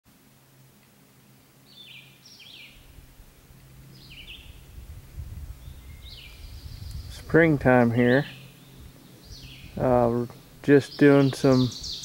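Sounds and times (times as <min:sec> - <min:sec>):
faint low rumble: 0:02.7 - 0:10.6
songbird singing falling notes: 0:03.9 - 0:04.7, 0:05.6 - 0:12.0.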